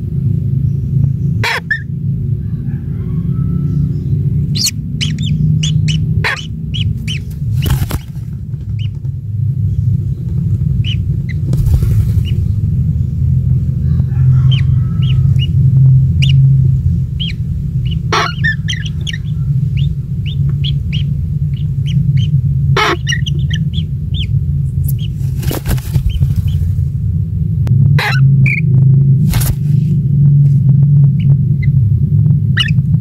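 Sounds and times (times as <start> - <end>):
loud low rumble: 0.0 - 33.0
small bird chirping: 3.6 - 9.0, 9.6 - 13.2, 14.5 - 16.5, 17.1 - 26.7, 32.5 - 32.8
sharp knocks or rustles: 7.2 - 9.2, 11.5 - 12.9, 25.1 - 26.8.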